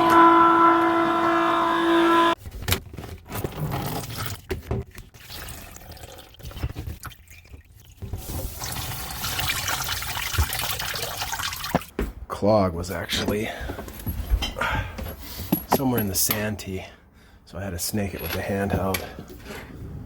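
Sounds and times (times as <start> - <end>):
water running and pouring: 3.7 - 11.9.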